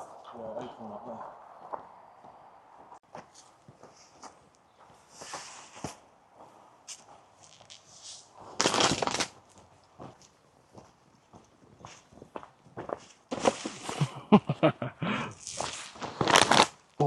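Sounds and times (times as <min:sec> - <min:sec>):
footsteps on a path: 0:00.0 - 0:16.9
scraping rustle: 0:05.1 - 0:06.0, 0:06.9 - 0:09.6, 0:13.0 - 0:14.1, 0:15.4 - 0:17.0.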